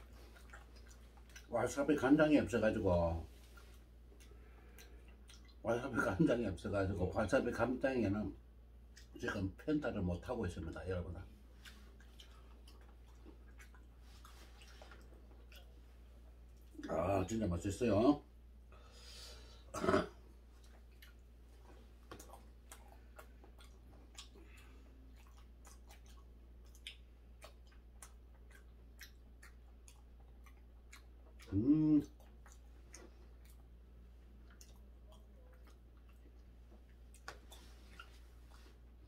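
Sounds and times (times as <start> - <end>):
person chewing: 0.0 - 1.5, 3.3 - 5.6, 8.9 - 9.2, 11.2 - 17.1, 18.9 - 39.0
person humming: 31.5 - 32.1.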